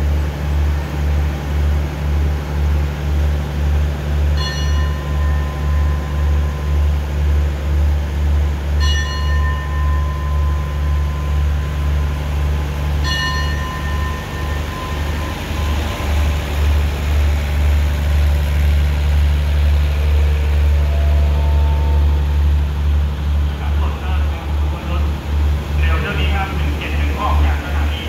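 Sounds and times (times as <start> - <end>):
train carriages rumbling past: 0.0 - 28.0
ringing tone: 8.8 - 12.3, 13.0 - 16.4, 20.2 - 22.5.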